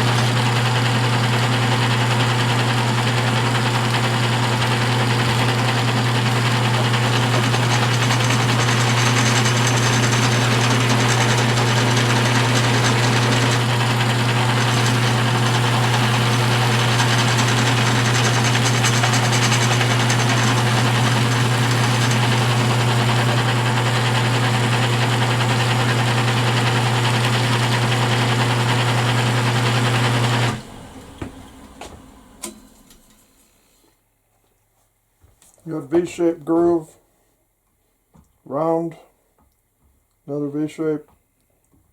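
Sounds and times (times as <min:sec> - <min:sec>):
edge burnisher motor humming: 0:00.0 - 0:32.6.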